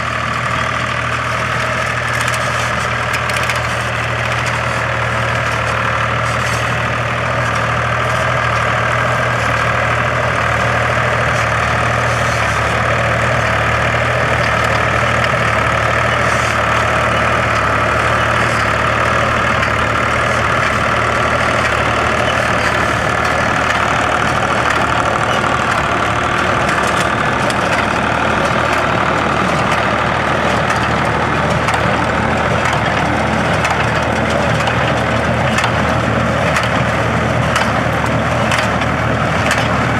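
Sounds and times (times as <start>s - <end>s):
hay baler machinery working: 0.0s - 39.9s
tractor engine running: 0.0s - 39.9s.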